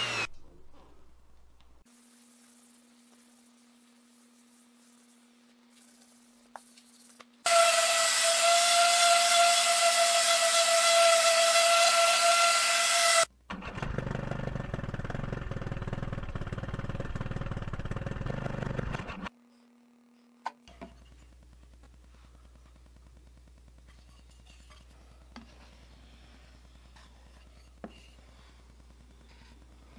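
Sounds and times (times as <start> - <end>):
power tool high whine: 0.0 - 0.3, 7.5 - 13.3
tool cutting or sanding wood: 0.0 - 0.3, 7.5 - 13.3.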